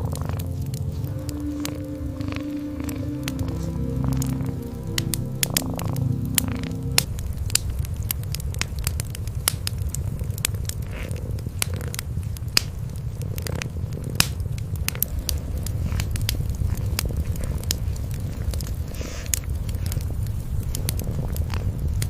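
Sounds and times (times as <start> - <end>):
steady held tone: 0.0 - 7.6
cats purring: 0.0 - 22.0
wood fire crackling and popping: 0.0 - 22.0.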